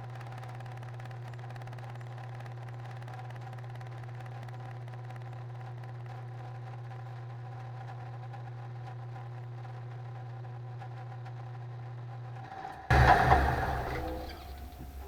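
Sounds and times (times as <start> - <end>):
low machine hum: 12.4 - 15.0.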